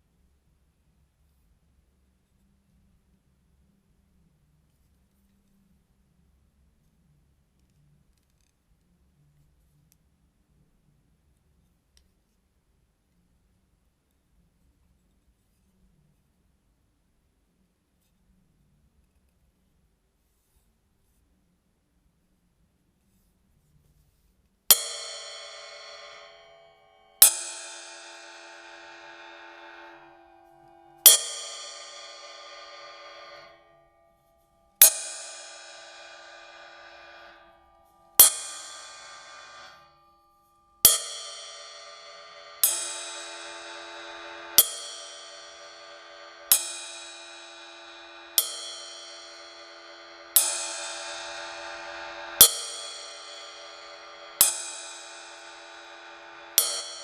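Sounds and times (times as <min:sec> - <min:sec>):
ride cymbal struck with drumstick: 0:24.7 - 0:34.0, 0:34.8 - 0:40.0, 0:40.8 - 0:57.0.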